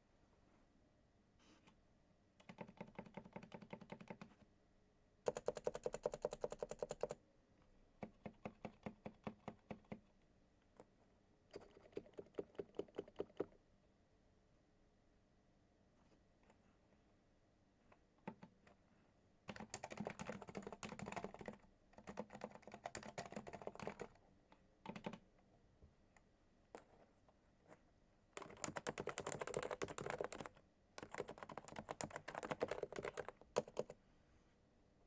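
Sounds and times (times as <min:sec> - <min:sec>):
keyboard typing: 0:02.4 - 0:04.4, 0:05.2 - 0:07.2, 0:08.0 - 0:10.1, 0:11.5 - 0:13.6, 0:19.5 - 0:24.2, 0:24.8 - 0:25.2, 0:28.4 - 0:34.0.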